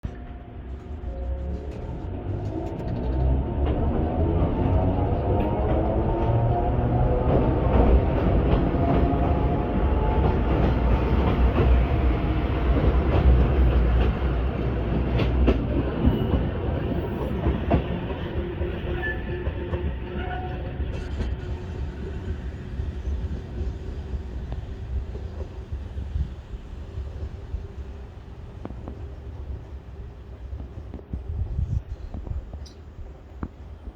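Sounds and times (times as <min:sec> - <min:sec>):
electric train pulling away: 0:00.3 - 0:28.4.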